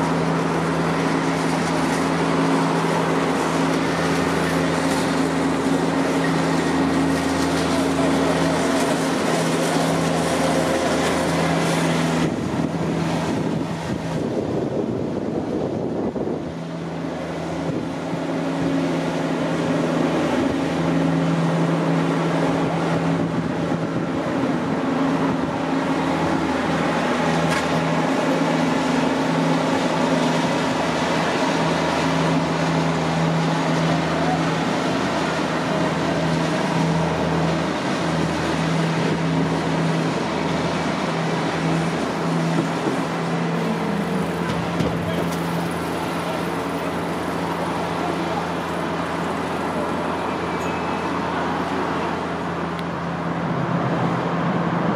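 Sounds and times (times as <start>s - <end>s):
low hums: 0.0s - 54.9s
rail and traffic noise: 0.0s - 54.9s
electric train approaching: 41.7s - 54.9s.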